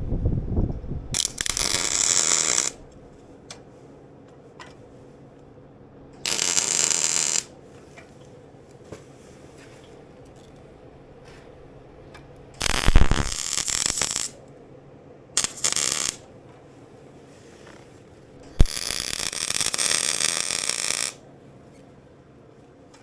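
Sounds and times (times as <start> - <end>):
arc welding crackle: 1.2 - 3.1, 6.2 - 7.5, 12.5 - 14.4, 15.4 - 16.3, 18.4 - 21.2.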